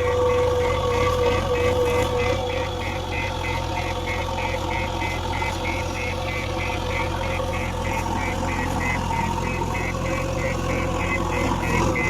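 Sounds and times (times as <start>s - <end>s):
diesel engine idling: 0.0s - 12.0s
high-pitched pulsing: 0.0s - 12.0s.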